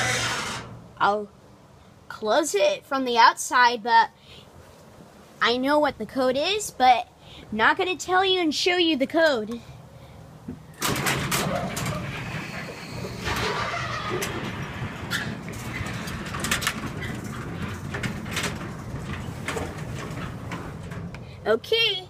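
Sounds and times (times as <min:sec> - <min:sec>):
garage door opener motor hum: 0:00.0 - 0:00.8, 0:10.8 - 0:21.1
chain and door clicks and rattles: 0:10.8 - 0:21.2.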